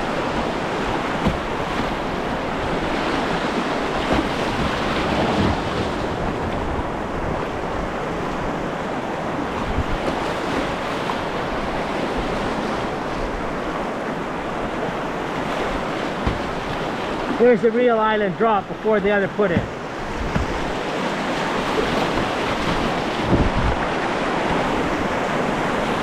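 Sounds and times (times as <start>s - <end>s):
river water rushing: 0.0s - 26.0s
wind noise on microphone: 9.5s - 10.9s, 19.6s - 20.8s, 21.4s - 26.0s.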